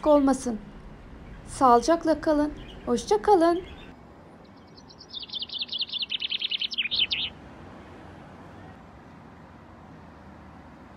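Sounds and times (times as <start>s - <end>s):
songbird singing fast trill: 2.6s - 3.9s, 4.6s - 7.3s.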